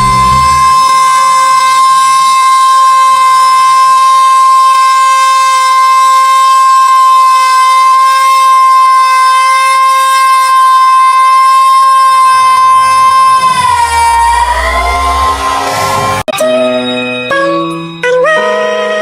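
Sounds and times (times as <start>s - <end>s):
steady siren-like tone: 0.0s - 16.3s.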